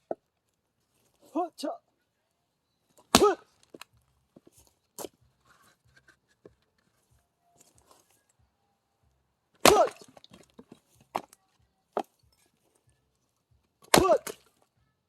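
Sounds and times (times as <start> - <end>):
axe chopping firewood: 3.0 - 5.2, 9.6 - 12.2, 13.8 - 14.5.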